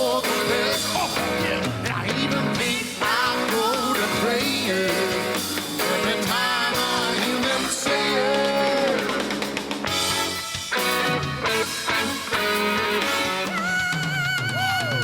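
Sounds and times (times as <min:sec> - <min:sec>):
male lead vocal singing: 0:00.0 - 0:09.8
live rock band playing: 0:00.0 - 0:15.0.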